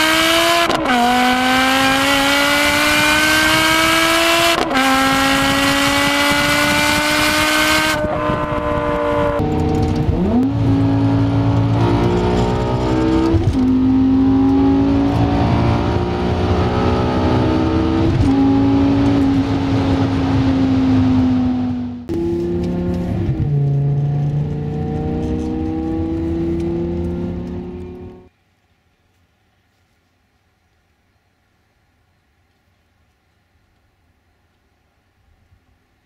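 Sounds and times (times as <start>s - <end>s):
car engine accelerating: 0.0s - 28.3s.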